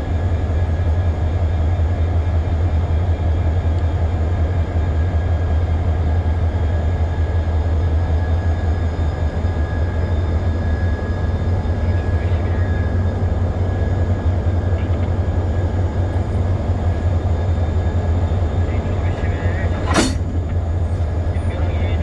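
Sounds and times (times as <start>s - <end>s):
diesel locomotive engine drone: 0.0s - 22.0s
faint high whine: 14.6s - 22.0s.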